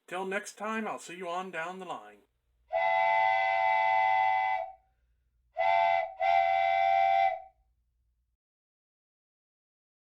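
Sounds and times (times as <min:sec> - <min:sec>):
steam locomotive whistle blasts: 0:02.7 - 0:04.8, 0:05.6 - 0:07.5.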